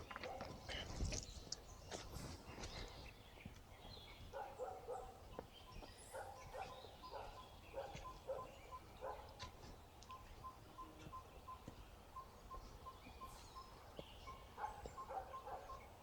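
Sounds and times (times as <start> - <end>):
high regular peeping: 4.1 - 16.0.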